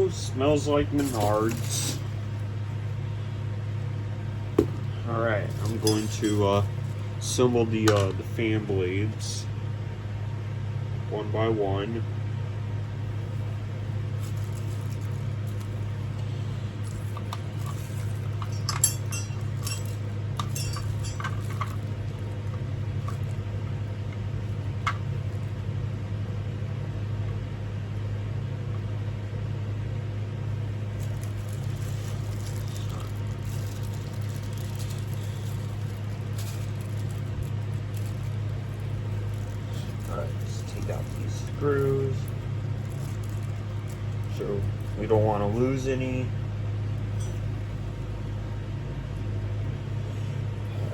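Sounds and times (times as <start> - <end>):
steady low hum: 0.0 - 50.9
light metallic clinks and clicks: 5.6 - 6.6, 17.6 - 21.8.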